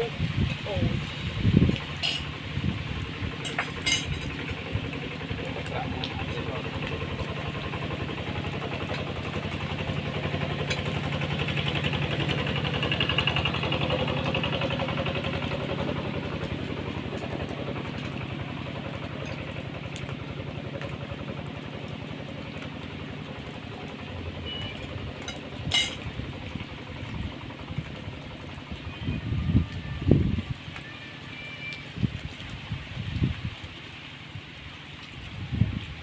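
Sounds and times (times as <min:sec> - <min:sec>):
small engine running: 0:02.6 - 0:29.4.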